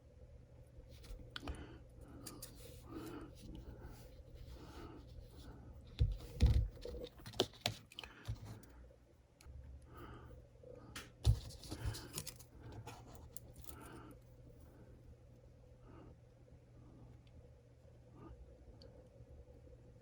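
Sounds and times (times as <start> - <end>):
small parts clicking and scraping: 11.7 - 14.0.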